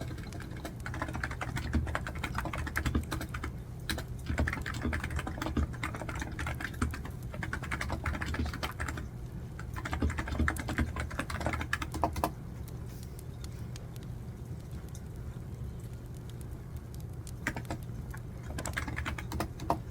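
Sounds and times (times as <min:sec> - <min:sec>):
computer keyboard typing: 0:00.0 - 0:12.4, 0:17.0 - 0:19.9.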